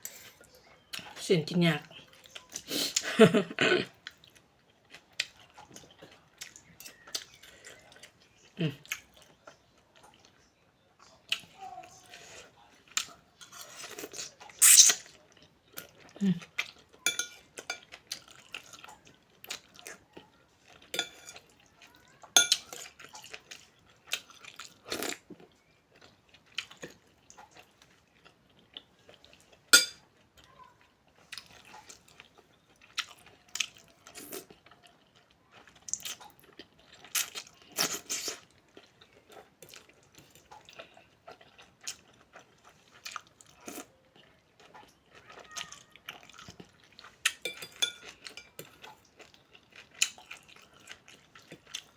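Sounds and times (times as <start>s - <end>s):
person chewing: 31.1s - 51.9s.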